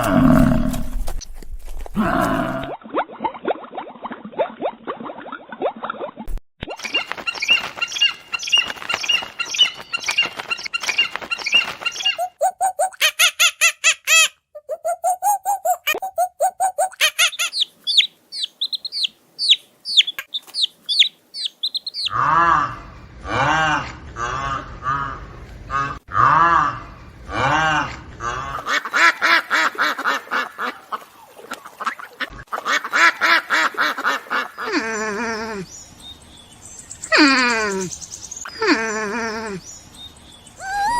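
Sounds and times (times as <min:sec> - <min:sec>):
birds chirping: 0:06.8 - 0:12.9, 0:14.7 - 0:22.2, 0:28.6 - 0:40.9
chicken calling: 0:10.4 - 0:22.5, 0:40.6 - 0:40.9
ducks quacking: 0:27.3 - 0:35.0.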